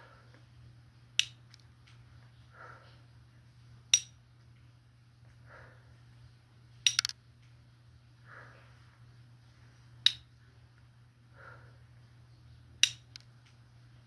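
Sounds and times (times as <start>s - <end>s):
sharp snaps: 1.2s - 2.0s, 6.8s - 7.6s, 12.8s - 13.6s.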